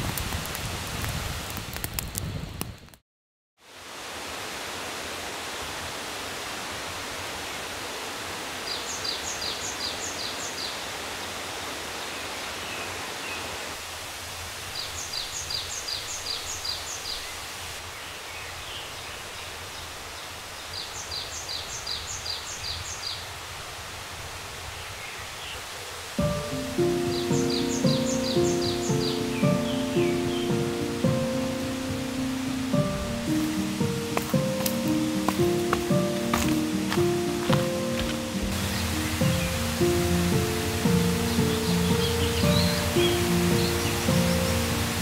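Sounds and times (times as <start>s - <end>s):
steady rushing noise: 25.8s - 45.0s
high chirping call: 26.2s - 45.0s.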